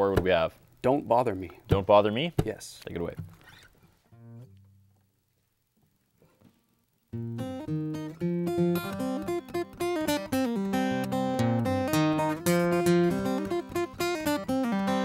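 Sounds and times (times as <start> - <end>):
acoustic guitar strumming: 0.0 - 5.0, 6.4 - 15.0.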